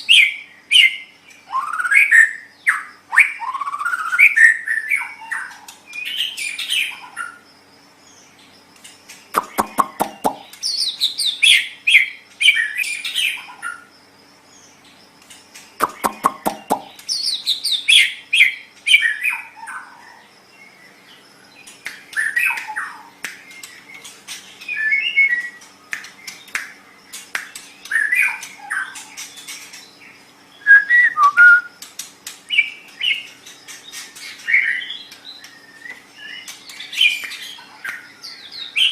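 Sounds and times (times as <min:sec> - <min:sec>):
bird harsh clicking rattle: 0:15.2 - 0:17.2
bird singing whistled phrases: 0:30.6 - 0:31.8.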